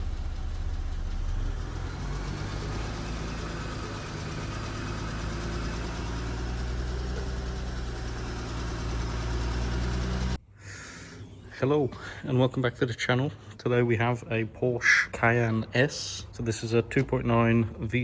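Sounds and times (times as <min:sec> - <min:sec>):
car engine idling: 0:00.0 - 0:10.4
fast regular engine ticking: 0:00.0 - 0:10.4.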